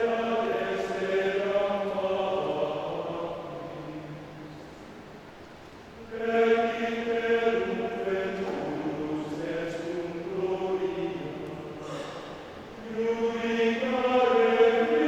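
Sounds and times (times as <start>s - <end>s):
men's choir singing held notes: 0.0s - 4.6s, 5.9s - 15.0s.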